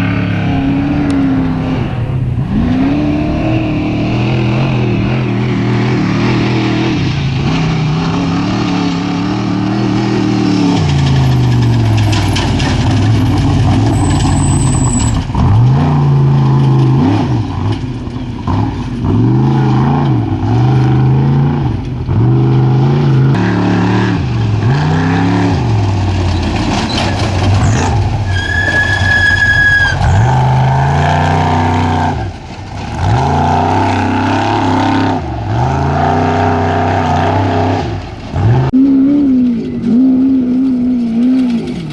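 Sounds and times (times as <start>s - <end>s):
truck engines revving: 0.0s - 41.9s.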